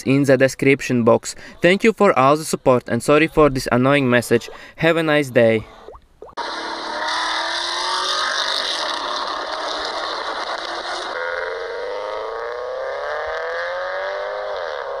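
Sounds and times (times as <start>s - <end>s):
car engine accelerating: 6.4s - 15.0s.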